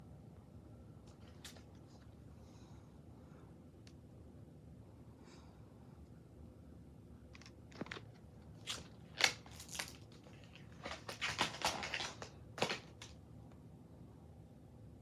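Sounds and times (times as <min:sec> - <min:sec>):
rustling and scraping handling noises: 0:07.4 - 0:13.1.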